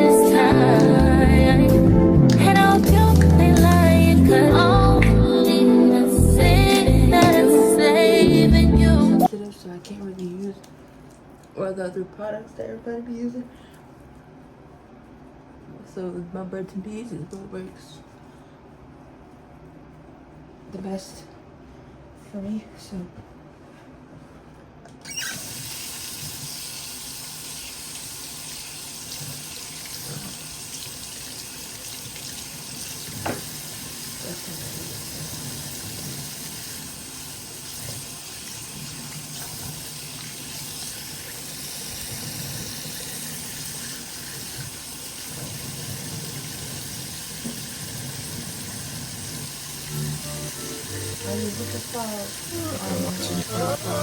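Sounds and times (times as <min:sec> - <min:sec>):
tap water splashing into sink: 0:29.6 - 0:33.8.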